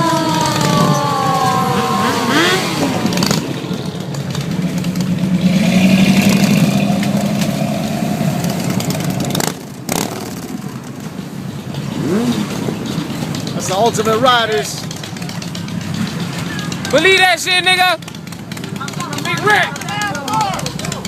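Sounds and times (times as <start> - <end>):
siren wail: 0.0 - 9.4
cars and motorcycles passing: 0.0 - 21.0.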